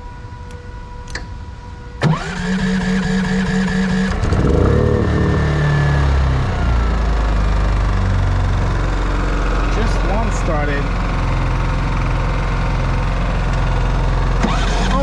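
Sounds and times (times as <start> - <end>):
electric starter cranking: 2.0 - 5.6, 14.3 - 15.0
generator engine running: 2.0 - 15.0.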